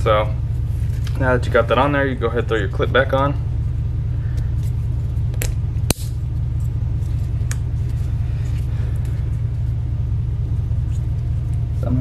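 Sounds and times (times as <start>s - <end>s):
low rumble: 0.0s - 12.0s
sharp clip click: 5.4s - 6.2s.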